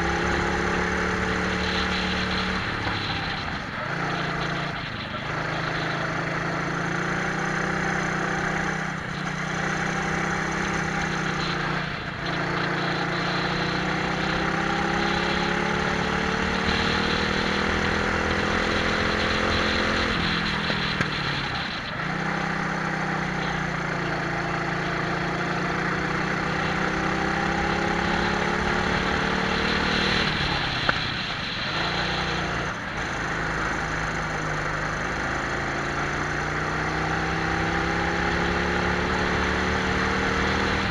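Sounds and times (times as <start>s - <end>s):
kart engines revving: 0.0s - 40.9s.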